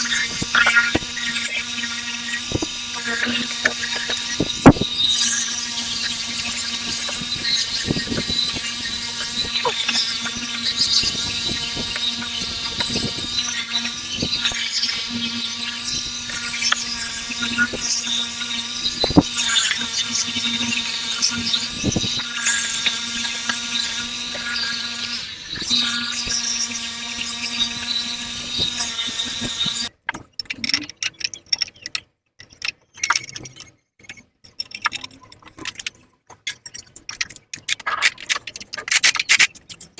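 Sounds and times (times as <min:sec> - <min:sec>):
power tool whining on metal: 0:00.0 - 0:29.9.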